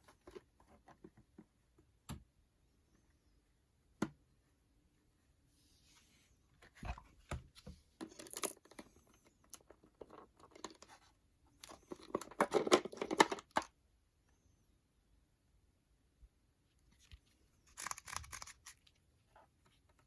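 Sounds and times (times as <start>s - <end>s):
packaging tearing and crinkling: 17.7s - 18.8s.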